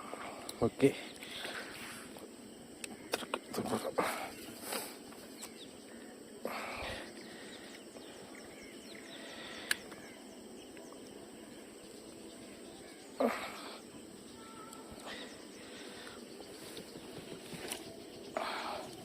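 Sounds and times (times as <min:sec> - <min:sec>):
faint birds: 0:00.0 - 0:19.0
insects: 0:00.0 - 0:19.0.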